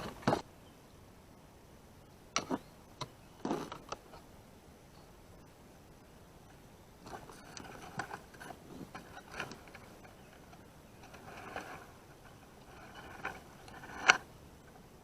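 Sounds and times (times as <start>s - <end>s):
hands clicking and scraping gear: 7.1s - 14.3s.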